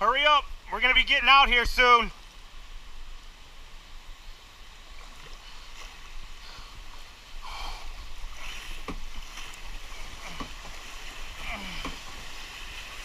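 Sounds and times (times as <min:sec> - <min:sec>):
floodwater rushing: 0:00.0 - 0:13.0
paddle strokes splashing: 0:04.8 - 0:13.0.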